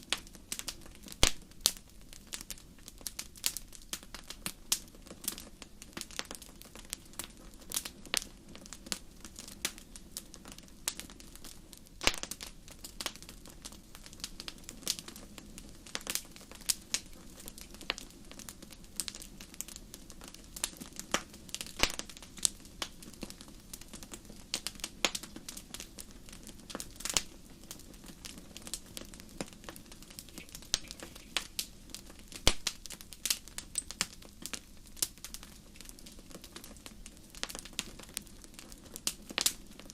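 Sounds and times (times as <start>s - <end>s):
campfire crackling and popping: 0.0s - 39.9s
low rush of burning: 0.1s - 39.9s.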